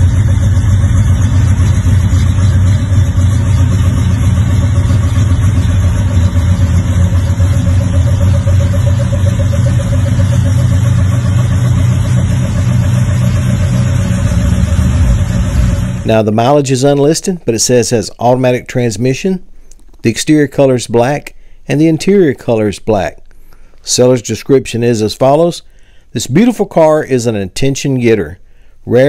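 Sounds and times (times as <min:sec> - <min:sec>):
car engine idling: 0:00.0 - 0:16.3.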